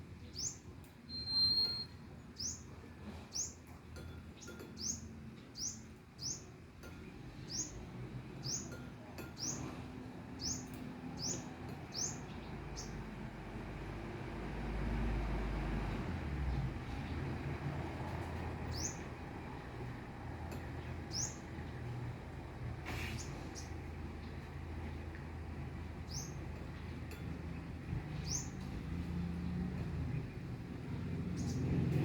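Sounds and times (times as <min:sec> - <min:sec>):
small bird chirping: 0:00.2 - 0:02.7, 0:10.4 - 0:13.1, 0:18.7 - 0:19.2, 0:27.6 - 0:29.2
high whistle: 0:01.1 - 0:02.0.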